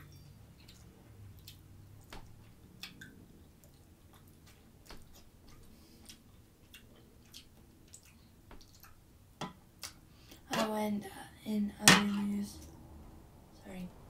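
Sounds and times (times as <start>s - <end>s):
chewing food: 0.0s - 9.1s.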